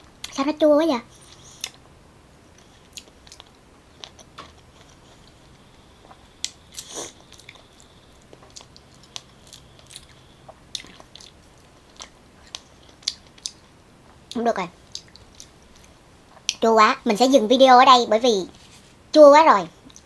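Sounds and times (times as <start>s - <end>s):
chewing juicy pineapple: 2.5s - 16.6s.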